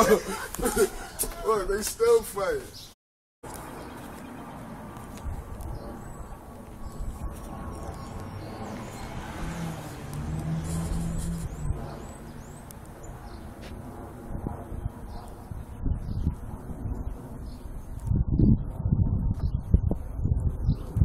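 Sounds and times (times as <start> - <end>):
street traffic noise: 0.0 - 14.2
vehicle engine hum passing: 3.5 - 15.5.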